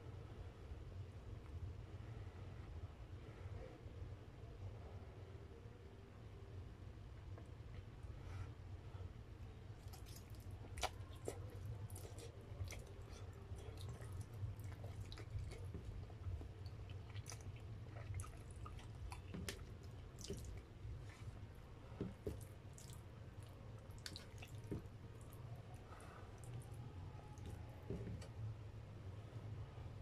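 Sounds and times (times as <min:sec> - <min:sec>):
steady low hum: 0:00.0 - 0:30.0
chewing spaghetti: 0:09.7 - 0:28.3.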